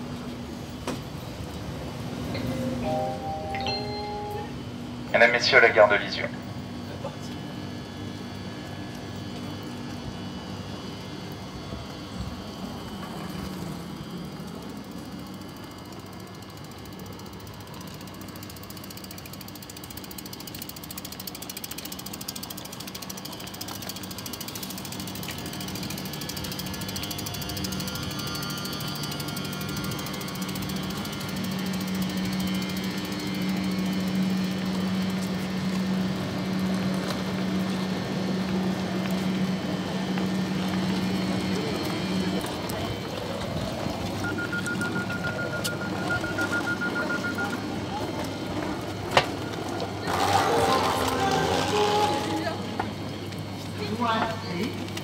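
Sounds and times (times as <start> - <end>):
electric train low hum: 0.0 - 55.0
fast mechanical rattle: 14.5 - 34.8.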